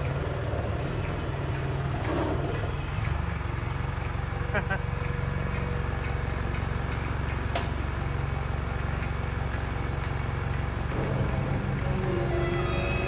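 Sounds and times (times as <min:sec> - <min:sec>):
excavator diesel engine running: 0:00.0 - 0:13.0
music: 0:11.0 - 0:13.0.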